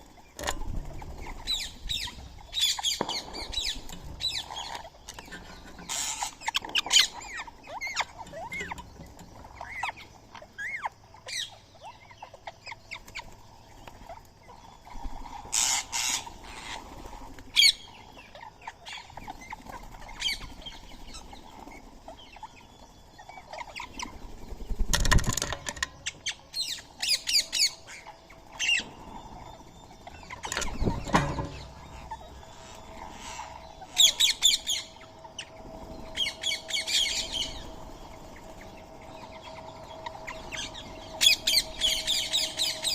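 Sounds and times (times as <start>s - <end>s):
wings flapping: 0.0s - 10.2s, 12.9s - 22.7s, 23.3s - 42.9s
parakeets chirping and squawking: 0.0s - 42.9s.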